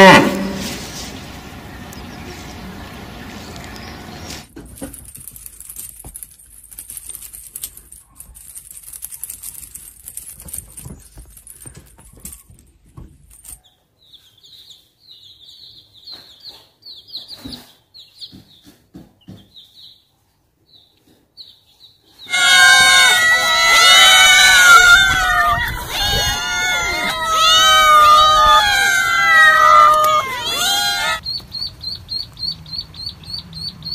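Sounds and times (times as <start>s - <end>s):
clicks and scuffling: 3.5s - 13.7s
chicks peeping: 20.8s - 33.9s.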